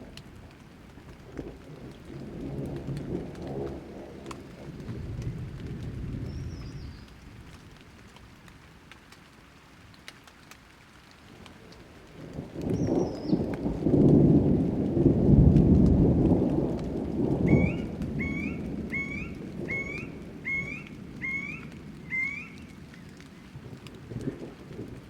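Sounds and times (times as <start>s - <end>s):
thunder rumbling: 0.0s - 7.9s, 12.1s - 25.0s
steady rain: 0.0s - 25.0s
bird calling short rising notes: 17.5s - 22.7s.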